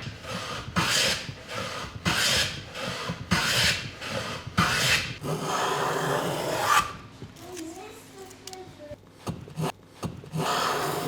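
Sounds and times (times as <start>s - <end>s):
hand tool scraping wooden board: 0.0s - 5.7s.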